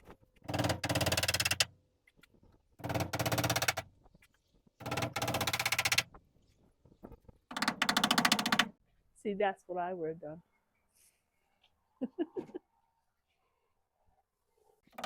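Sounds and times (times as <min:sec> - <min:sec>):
impact driver hammering rattle: 0:00.5 - 0:01.7, 0:02.8 - 0:03.8, 0:07.5 - 0:08.7.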